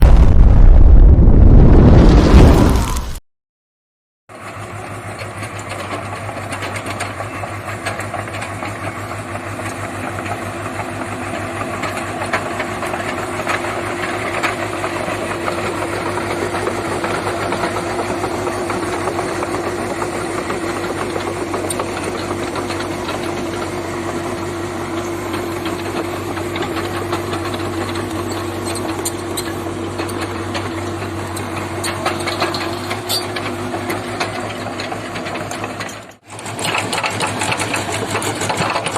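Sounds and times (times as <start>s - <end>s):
diesel excavator engine running: 0.0s - 3.1s, 4.3s - 38.9s
steady whine: 0.0s - 3.2s
fast even clatter: 31.6s - 38.9s.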